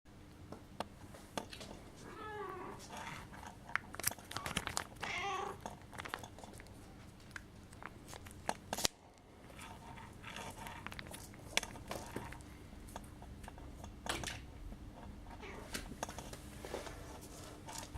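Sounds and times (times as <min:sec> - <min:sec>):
kittens mewing: 0:04.4 - 0:05.6.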